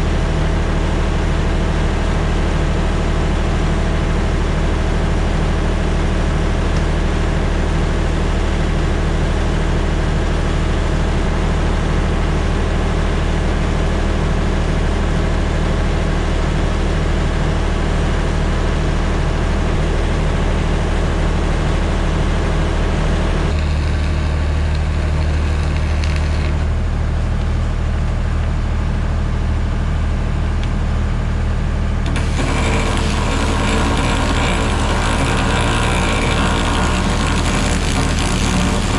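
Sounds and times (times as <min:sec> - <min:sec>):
engine running steadily: 0:22.6 - 0:35.6.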